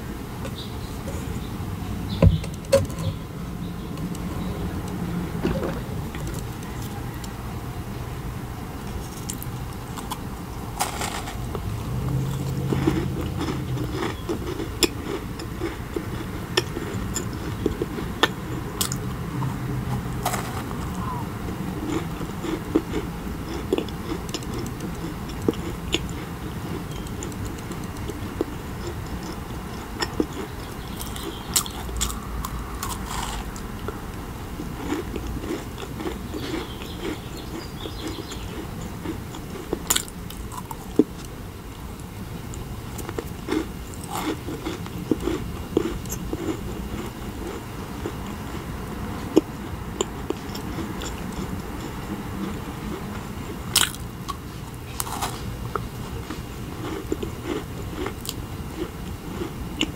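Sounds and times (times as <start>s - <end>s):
wet chewing: 10.8s - 34.0s, 34.6s - 41.3s, 42.5s - 59.9s.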